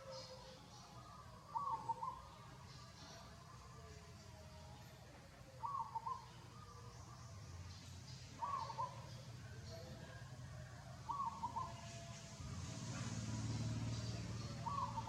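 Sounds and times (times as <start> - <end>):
bird calling: 0.0 - 3.2, 5.6 - 7.0, 8.3 - 10.0, 11.1 - 12.1, 14.2 - 15.0.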